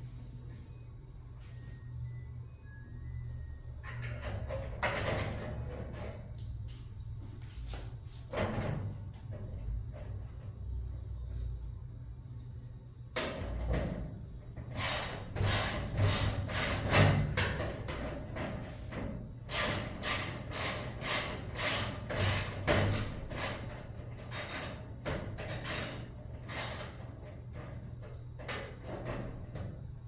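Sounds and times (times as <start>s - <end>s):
low steady hum: 0.0s - 14.7s.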